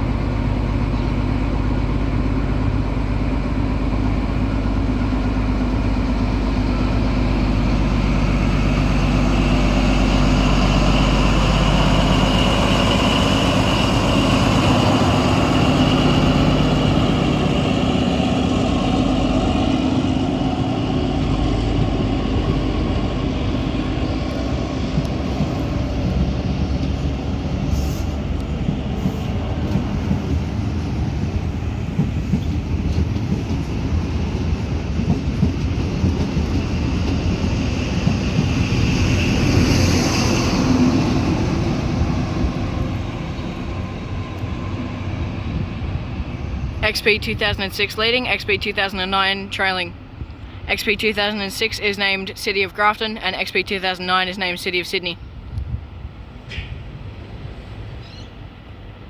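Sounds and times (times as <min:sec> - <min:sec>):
diesel train engine drone: 0:00.0 - 0:59.0
train wheels clattering on track: 0:00.2 - 0:44.6, 0:56.4 - 0:58.0.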